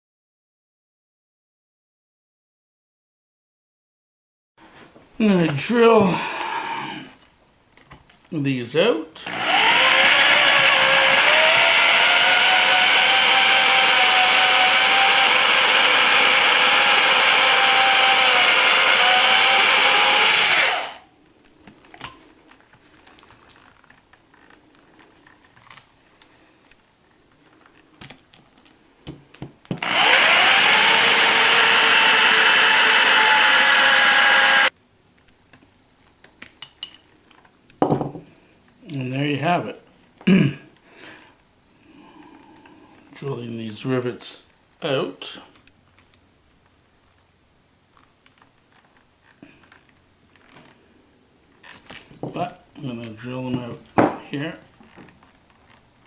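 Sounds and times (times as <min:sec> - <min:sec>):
electric drill whining: 0:09.2 - 0:21.1, 0:29.8 - 0:34.7.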